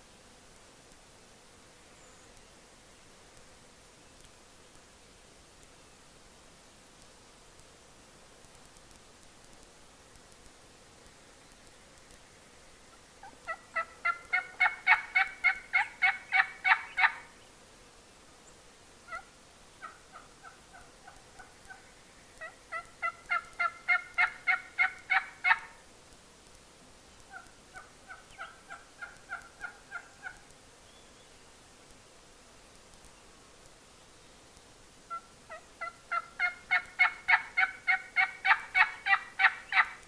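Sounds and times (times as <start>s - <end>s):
turkey yelping: 13.5s - 17.2s, 22.4s - 25.7s, 27.3s - 30.4s, 35.1s - 39.9s.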